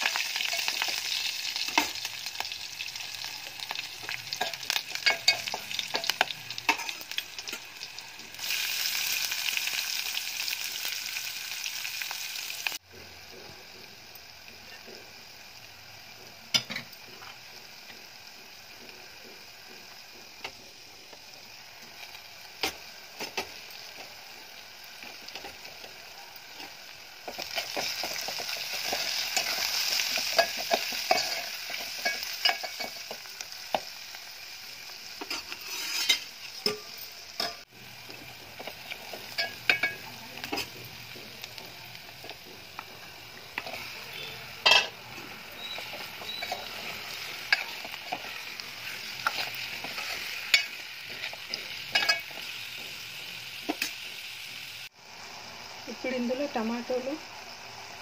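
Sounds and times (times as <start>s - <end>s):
onions sizzling in hot oil: 0.0s - 58.0s
spoon scraping metal pot: 35.2s - 37.6s.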